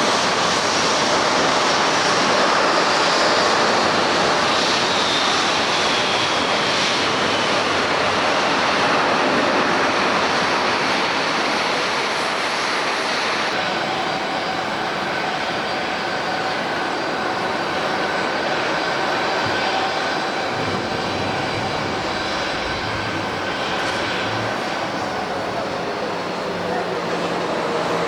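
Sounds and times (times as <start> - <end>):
jet engine roar: 0.0 - 28.0.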